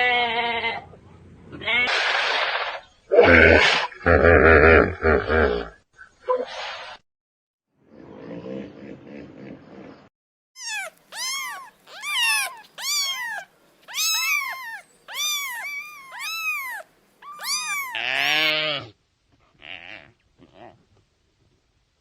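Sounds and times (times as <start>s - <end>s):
cat meowing: 10.6s - 18.6s.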